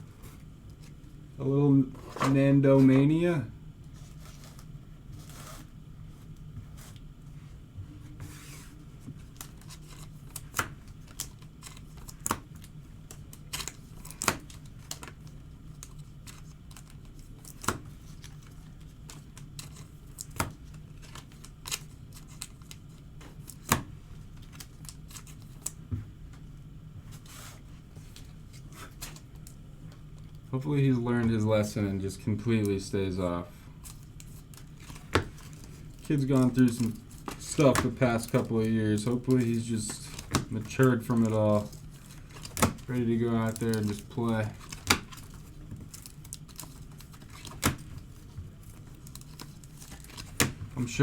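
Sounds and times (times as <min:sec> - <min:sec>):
low steady hum: 0:00.0 - 0:51.0
foil wrappers rustling and tearing: 0:09.2 - 0:25.8, 0:31.6 - 0:51.0
cards clicking: 0:34.5 - 0:47.9.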